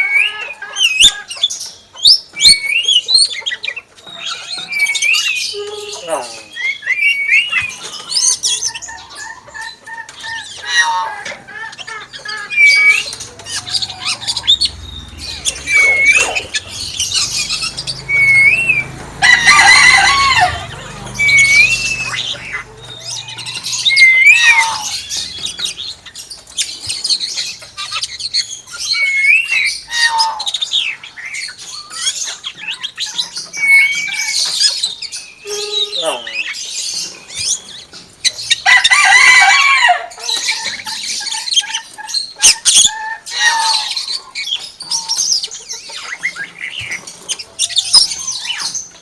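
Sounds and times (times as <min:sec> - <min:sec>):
harsh bird call: 0:10.4 - 0:26.1, 0:28.8 - 0:32.0, 0:35.3 - 0:37.2
high chirps and clicks: 0:11.7 - 0:28.4
myna whistling: 0:12.5 - 0:18.9, 0:20.5 - 0:25.2.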